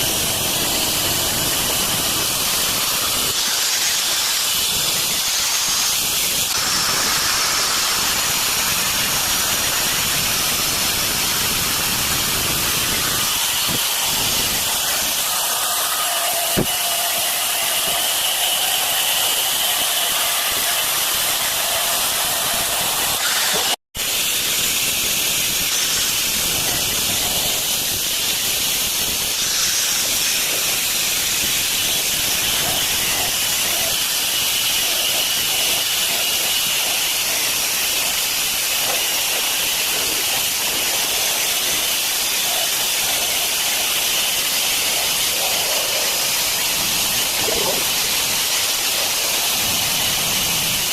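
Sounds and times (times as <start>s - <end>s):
water running from a tap: 24.6s - 50.9s.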